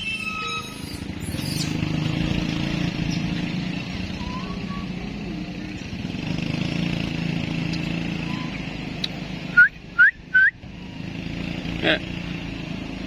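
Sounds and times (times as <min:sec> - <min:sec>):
high motor whine: 0:00.0 - 0:06.0.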